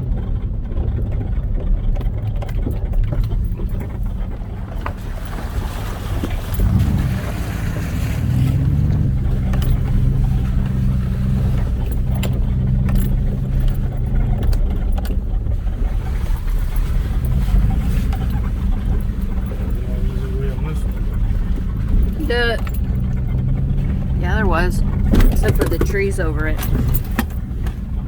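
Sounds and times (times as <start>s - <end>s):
vehicle engine at low revs: 0.0s - 28.0s
vehicle knocks and rattles: 0.0s - 28.0s.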